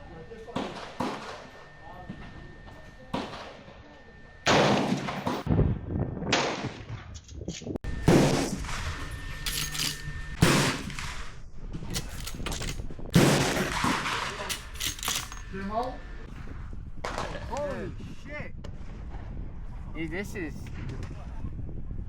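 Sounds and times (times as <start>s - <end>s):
gunshots with ringing decay: 0.5s - 1.8s, 3.1s - 3.8s, 4.4s - 5.5s, 10.4s - 11.2s, 13.2s - 14.5s.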